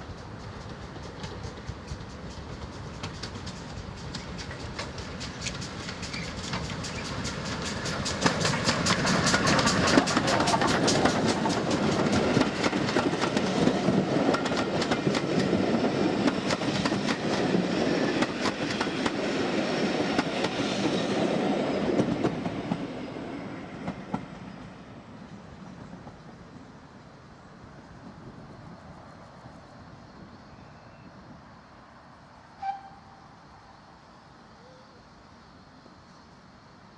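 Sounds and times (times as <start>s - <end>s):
train wheels clicking over rails: 0.0s - 27.0s.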